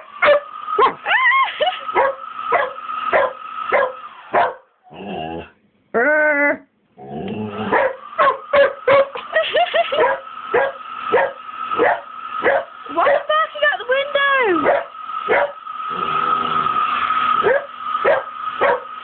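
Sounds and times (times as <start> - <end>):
hairdryer whine: 0.0 - 4.4, 7.3 - 19.0
dog barking: 0.2 - 1.0, 2.0 - 4.7, 7.7 - 9.2, 9.9 - 13.3, 14.6 - 15.6, 17.4 - 19.0
dog crying: 0.2 - 4.6, 7.4 - 13.3.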